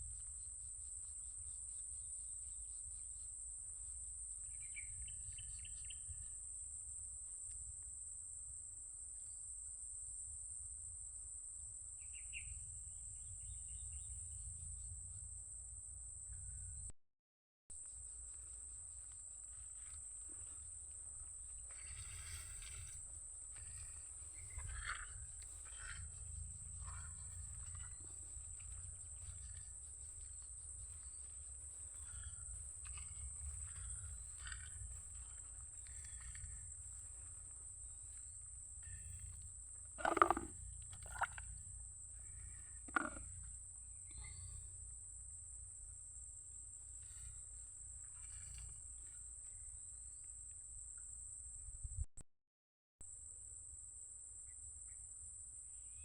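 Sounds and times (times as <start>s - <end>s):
insects droning: 0.0s - 16.9s, 17.8s - 52.1s, 53.1s - 56.0s
faint ticks: 17.8s - 41.6s
low rumble: 21.8s - 39.6s.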